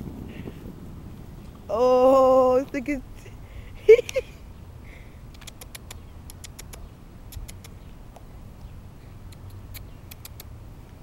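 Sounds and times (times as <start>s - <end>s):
low background rumble: 0.0s - 5.4s
squirrel gnawing crunchy clicks: 5.3s - 8.2s, 9.3s - 10.5s.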